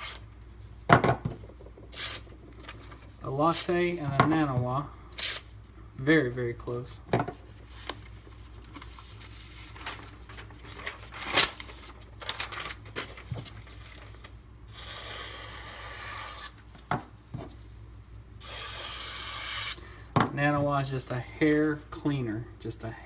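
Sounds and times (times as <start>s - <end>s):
knife slicing paper: 14.7s - 16.6s, 18.4s - 19.8s.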